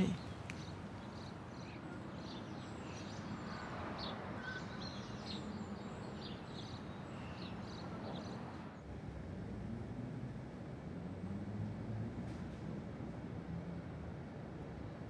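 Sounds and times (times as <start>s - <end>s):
birds chirping: 0.0s - 8.7s.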